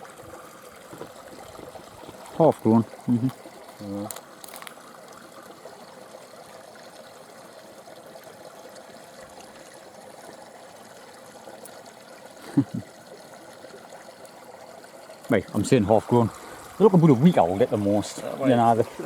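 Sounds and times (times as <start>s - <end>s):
stream trickling: 0.0s - 19.0s.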